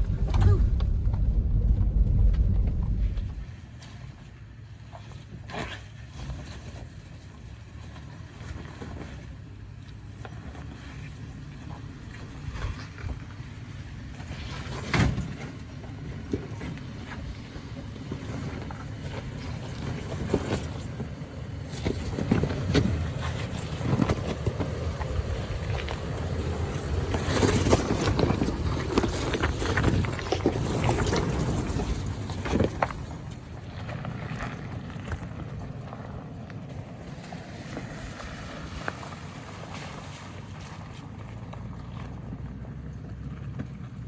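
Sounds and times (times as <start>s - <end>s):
low engine rumble: 0.0s - 4.9s, 15.4s - 44.0s.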